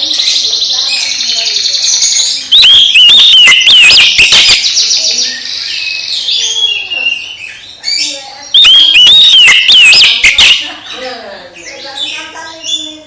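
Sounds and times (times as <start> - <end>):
bird chattering trill: 0.0 - 13.0
bird sweeping whistled notes: 2.0 - 7.6, 8.6 - 10.8.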